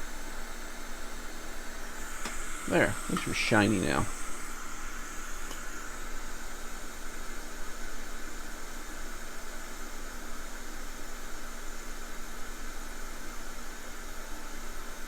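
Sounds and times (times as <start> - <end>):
steady hiss: 0.0 - 8.2.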